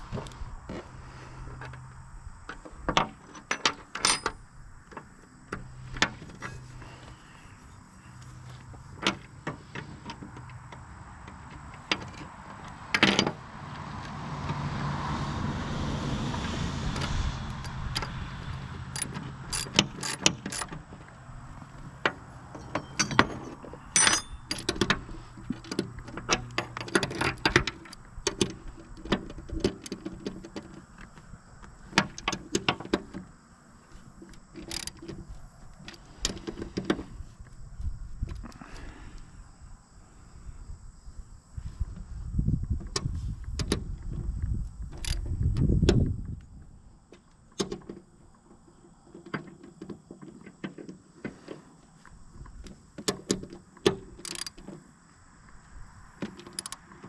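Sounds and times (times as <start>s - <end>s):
metal tools clinking on steel: 3.2s - 4.4s, 6.2s - 7.8s, 19.0s - 20.8s, 22.0s - 28.0s.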